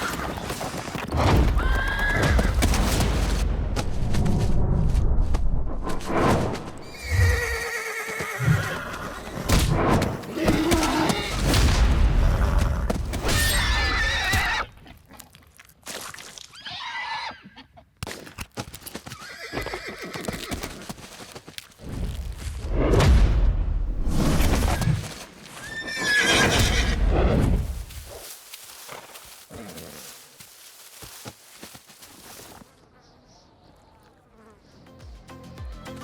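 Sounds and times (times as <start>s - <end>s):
horses whinnying: 0.0s - 2.6s, 6.9s - 9.5s, 10.3s - 11.5s, 12.3s - 14.8s, 16.5s - 17.8s, 19.0s - 21.0s, 25.6s - 27.3s
heavy hoofbeats: 18.6s - 21.8s.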